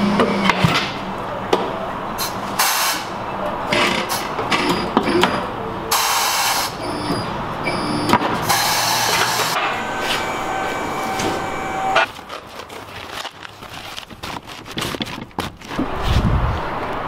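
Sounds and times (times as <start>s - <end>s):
pneumatic tool hissing: 8.4s - 9.6s.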